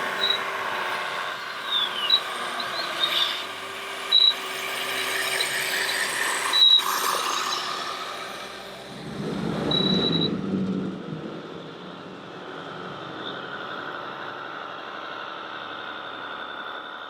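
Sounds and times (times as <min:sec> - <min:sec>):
electric motors and gearing whining: 0:00.0 - 0:10.9
falling squeak: 0:05.0 - 0:08.0
low hum: 0:08.0 - 0:14.7.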